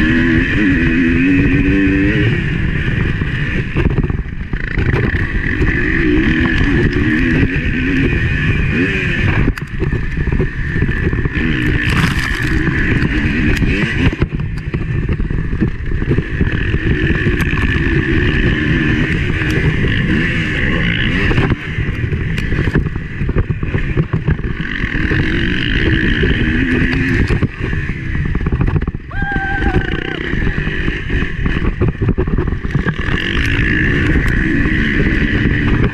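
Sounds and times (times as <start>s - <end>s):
motocross bike engine revving: 0.0s - 35.9s
wind rush: 21.2s - 35.9s.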